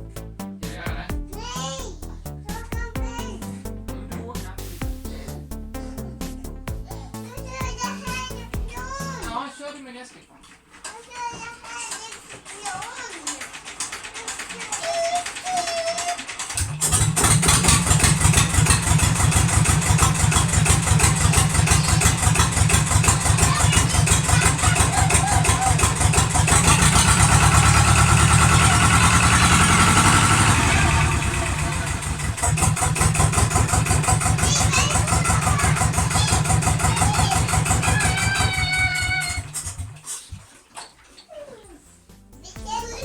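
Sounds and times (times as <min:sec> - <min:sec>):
marine diesel engine knocking: 0:16.3 - 0:40.0.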